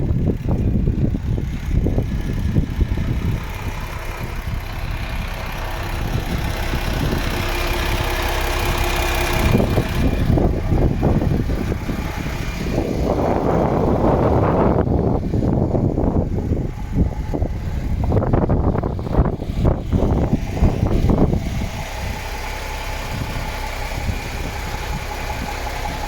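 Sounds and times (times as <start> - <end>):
truck diesel engine idling: 0.0 - 26.0
uneven low rumble: 0.0 - 26.0.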